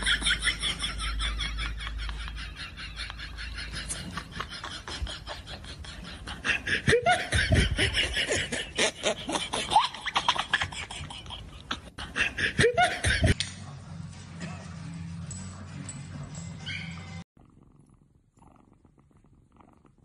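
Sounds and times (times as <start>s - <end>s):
person laughing: 0.0s - 13.4s.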